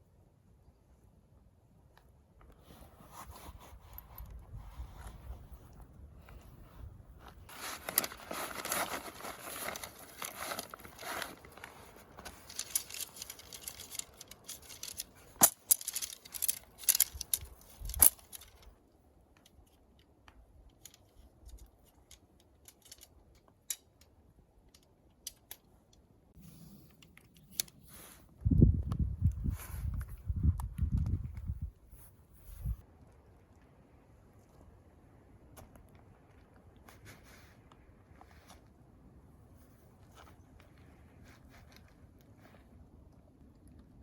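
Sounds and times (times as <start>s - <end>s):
rustling and crinkling handling noise: 2.4s - 23.8s, 35.5s - 38.8s, 39.5s - 43.9s.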